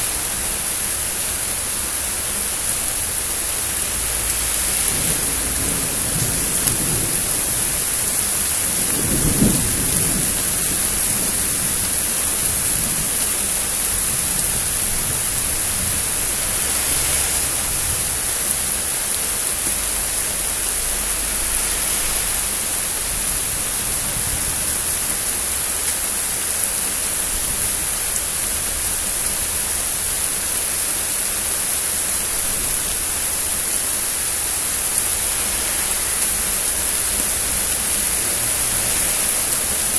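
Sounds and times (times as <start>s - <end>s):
steady rain: 0.0s - 39.9s
thunder rumble: 3.7s - 22.4s.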